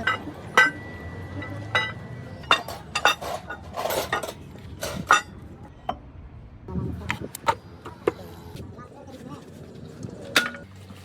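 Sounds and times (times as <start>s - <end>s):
metal parts clinking: 0.0s - 5.4s.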